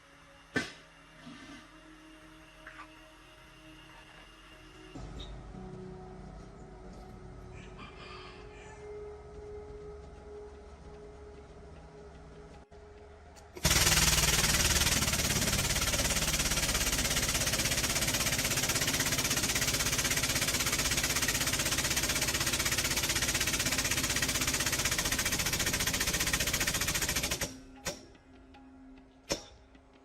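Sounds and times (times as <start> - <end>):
power tool running with rattle: 13.5 - 28.0.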